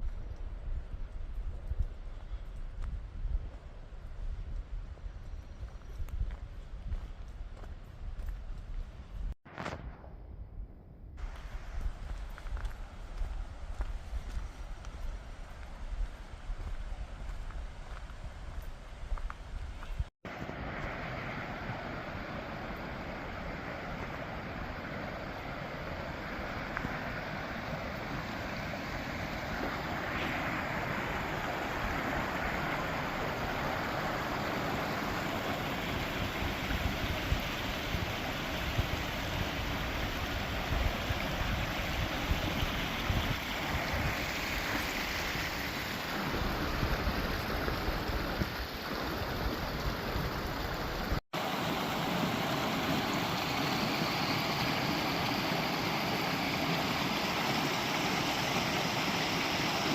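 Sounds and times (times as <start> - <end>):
rushing river and waterfall: 19.8 - 59.9
wind buffeting microphone: 35.8 - 44.8.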